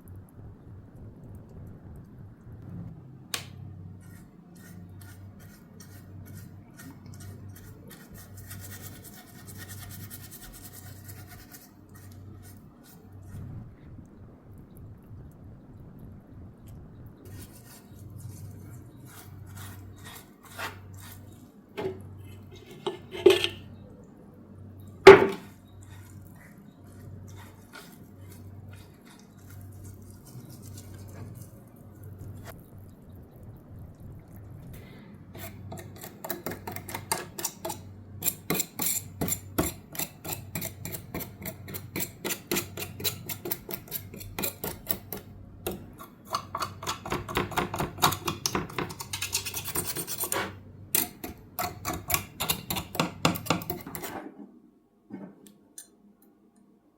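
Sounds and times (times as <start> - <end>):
rapid scraping and clicking on metal: 35.4 - 54.3.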